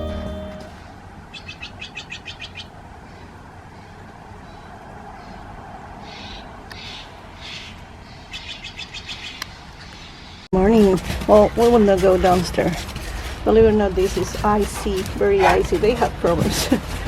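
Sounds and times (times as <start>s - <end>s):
songbirds chirping: 0.8s - 17.0s.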